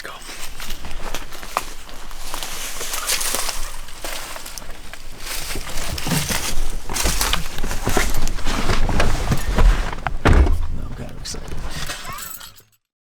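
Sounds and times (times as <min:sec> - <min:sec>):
footsteps crunching dry leaves: 0:00.2 - 0:07.6.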